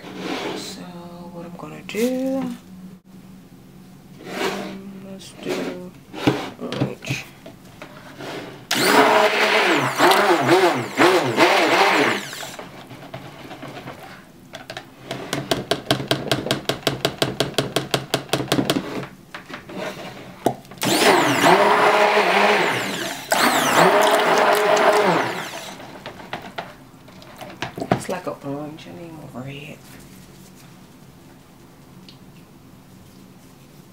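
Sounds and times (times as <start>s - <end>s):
stick blender motor: 8.2s - 14.1s, 20.8s - 26.7s.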